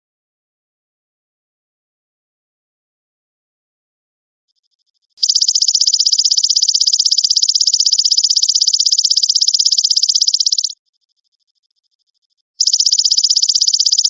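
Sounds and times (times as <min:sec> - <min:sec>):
faint soft insect pulsing: 0:04.6 - 0:14.0
grasshopper buzzing trill: 0:05.2 - 0:10.8, 0:12.6 - 0:14.0.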